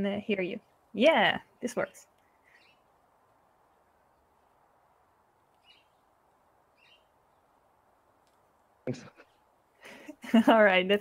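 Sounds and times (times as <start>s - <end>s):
faint bird chirps: 1.7s - 3.0s, 5.5s - 7.6s.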